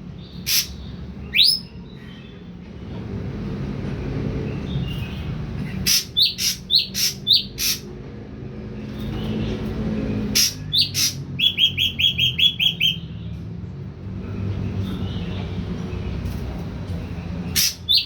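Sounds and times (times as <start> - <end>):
bird calling with clicky notes: 10.4 - 13.0.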